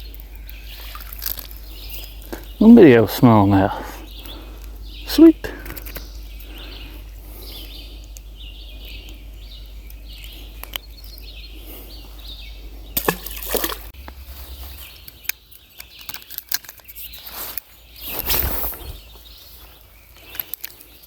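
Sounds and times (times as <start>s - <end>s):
outdoor hiss: 0.0s - 9.8s, 17.2s - 19.8s
water sloshing in river: 13.0s - 13.9s.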